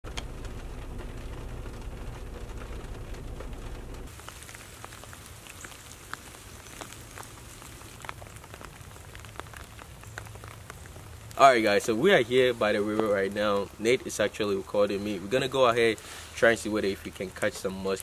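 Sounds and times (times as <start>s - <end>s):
rain falling on leaves and grass: 0.0s - 18.0s
rain on car windshield: 0.0s - 18.0s
low rumble: 0.1s - 4.1s.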